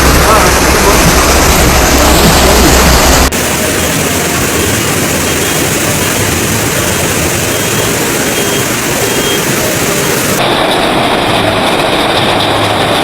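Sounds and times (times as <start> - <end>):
deep rumble: 0.0 - 3.3
floodwater rushing: 0.0 - 13.0.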